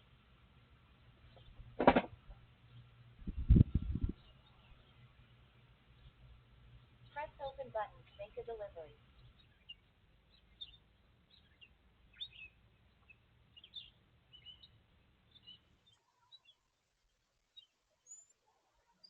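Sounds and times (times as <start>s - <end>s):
low hum: 1.0s - 9.4s
faint bird chirps: 2.5s - 19.0s.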